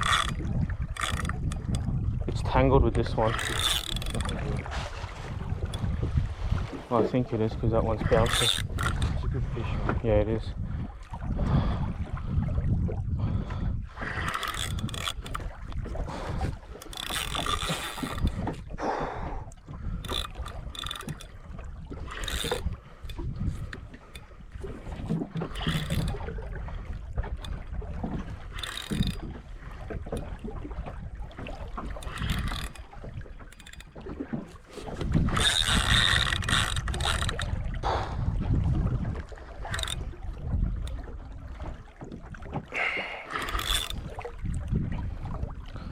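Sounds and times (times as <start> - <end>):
fishing reel clicking: 0.0 - 4.7, 7.7 - 9.2, 14.0 - 18.6, 19.9 - 26.3, 28.3 - 30.3, 31.7 - 34.0, 34.8 - 37.6, 39.6 - 40.1, 42.9 - 44.1
wind and water noise: 0.0 - 45.9.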